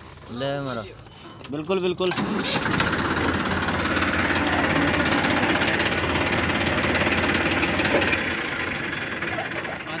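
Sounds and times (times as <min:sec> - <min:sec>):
tractor diesel engine chugging: 0:02.1 - 0:10.0.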